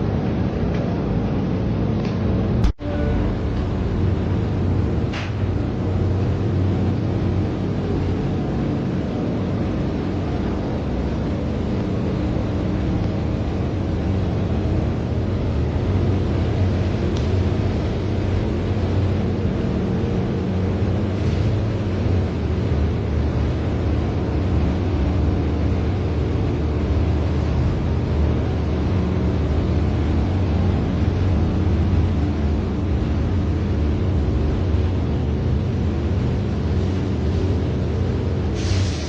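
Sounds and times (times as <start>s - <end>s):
low mechanical rumble: 0.0s - 39.0s
steady hiss: 36.2s - 39.0s.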